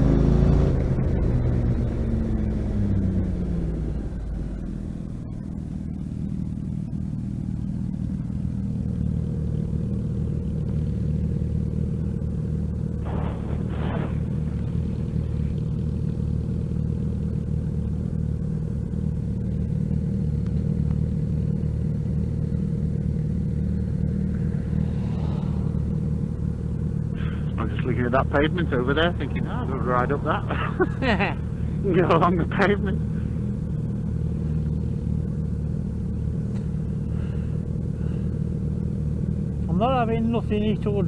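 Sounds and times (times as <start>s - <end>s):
motorcycle engine running: 0.0s - 41.0s
short noisy strokes: 13.0s - 14.8s.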